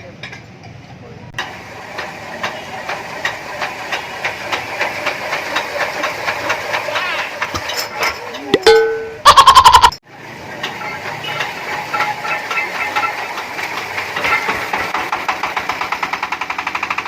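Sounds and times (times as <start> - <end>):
diesel engine knocking: 1.4 - 7.8, 10.4 - 17.0
steady ringing tone: 8.6 - 10.0.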